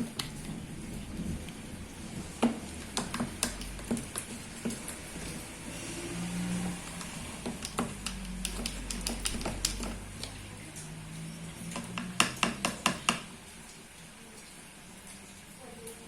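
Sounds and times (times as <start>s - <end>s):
spoon stirring slime: 2.5s - 5.2s, 6.8s - 10.4s.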